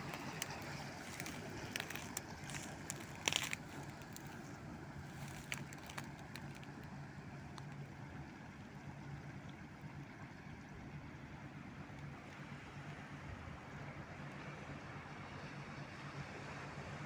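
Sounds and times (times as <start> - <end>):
water washing: 0.0 - 7.9
ship engines humming: 0.0 - 15.2.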